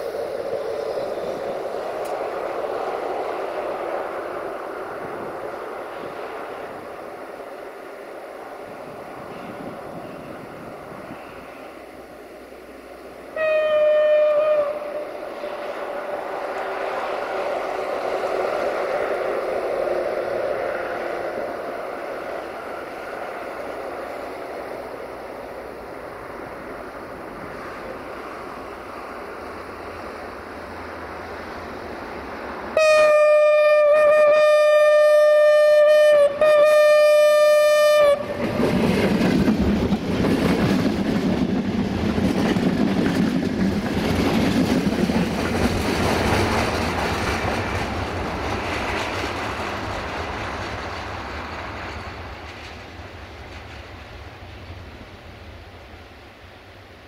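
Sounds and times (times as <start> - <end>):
train passing with loud rush: 0.0 - 57.0
train horn: 13.3 - 17.7, 32.7 - 38.6.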